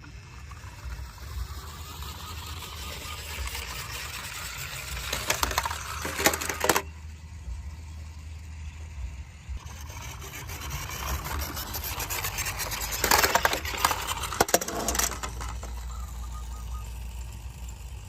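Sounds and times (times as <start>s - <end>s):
low hum: 0.0s - 18.0s
toy vehicles being handled: 0.0s - 18.0s
clicks and rattles: 5.0s - 6.9s, 12.7s - 16.0s.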